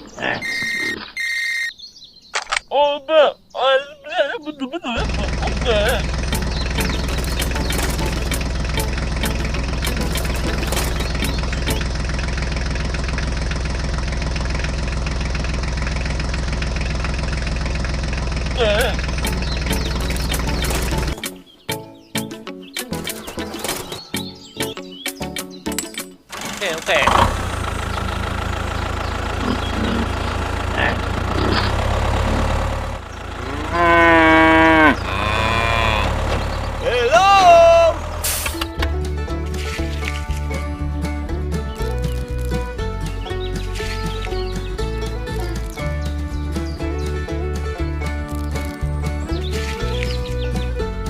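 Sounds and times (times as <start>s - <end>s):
small engine idling: 5.0s - 21.4s, 26.3s - 51.0s
loud moo-like call: 33.4s - 36.2s.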